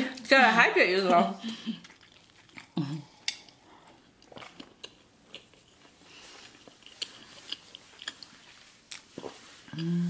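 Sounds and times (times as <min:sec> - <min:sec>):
chewing: 0:01.5 - 0:10.0.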